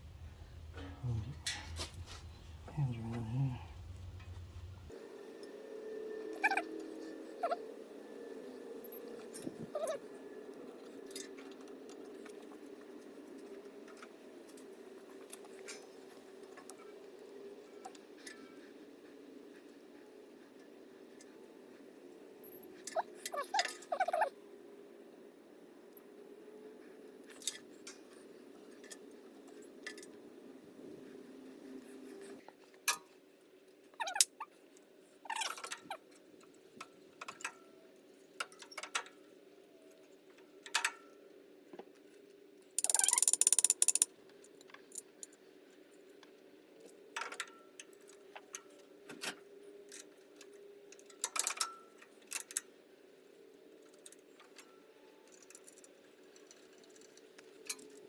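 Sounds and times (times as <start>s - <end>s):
faint steady hum: 0.0s - 11.2s
fuses clicking and tapping: 42.8s - 44.1s.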